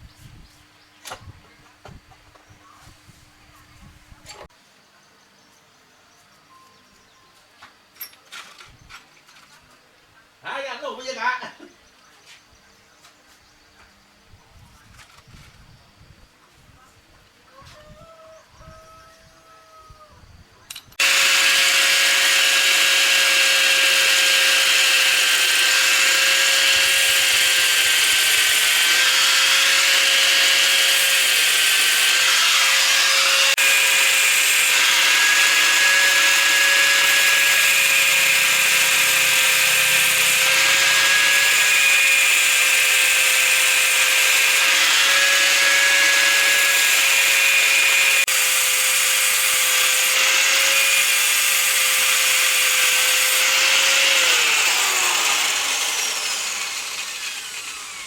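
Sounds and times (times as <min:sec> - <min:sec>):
electric power tool whining: 0:21.0 - 0:58.0.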